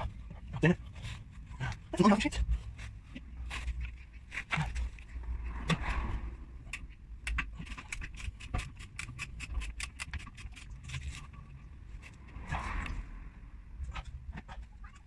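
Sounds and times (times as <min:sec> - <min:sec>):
metallic clicks of hand tools: 0:06.7 - 0:11.3
low rumble: 0:11.1 - 0:15.0.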